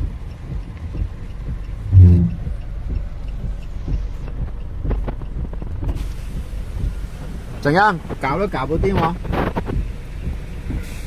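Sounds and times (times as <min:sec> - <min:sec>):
short low-pitched hum: 0:01.8 - 0:02.6.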